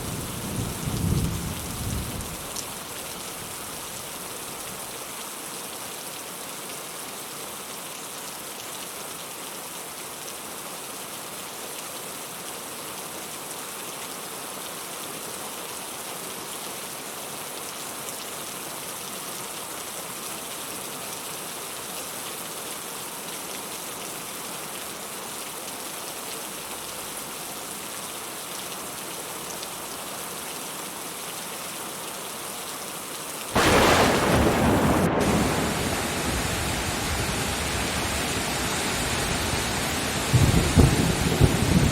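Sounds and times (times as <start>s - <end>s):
steady rain falling: 0.0s - 41.9s
loud thunder clap: 33.6s - 37.7s.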